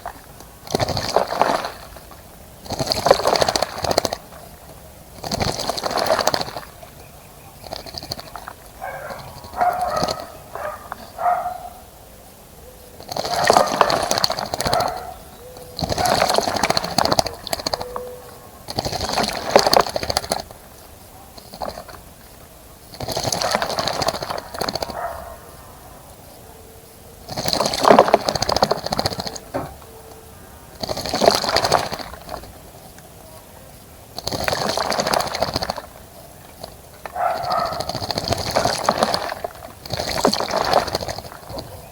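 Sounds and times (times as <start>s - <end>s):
bird splashing in water: 0.0s - 11.9s, 13.0s - 26.4s, 27.2s - 41.9s
wings fluttering: 0.0s - 11.9s, 12.7s - 41.9s.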